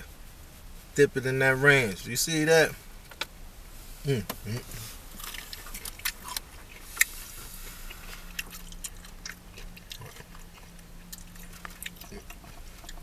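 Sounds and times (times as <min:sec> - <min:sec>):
crunchy chewing: 0:04.5 - 0:13.0.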